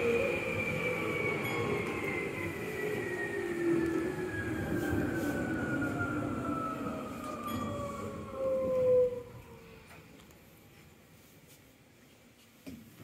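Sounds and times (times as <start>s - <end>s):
wheels rumbling on rails: 0.0s - 10.2s.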